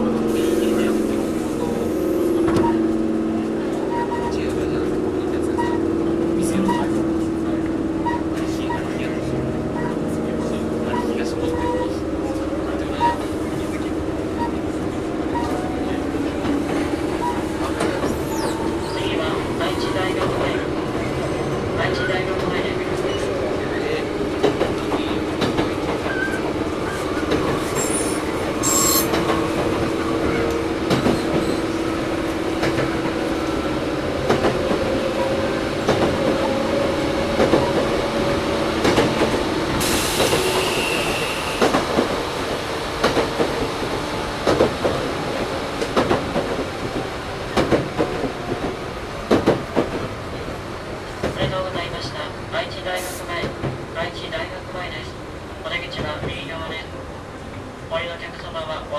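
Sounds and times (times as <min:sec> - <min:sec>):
train motor and gear hum: 0:00.0 - 0:58.9
rail-joint clicks: 0:24.3 - 0:36.6, 0:37.3 - 0:43.6
high hiss with thin squeal: 0:27.8 - 0:29.1.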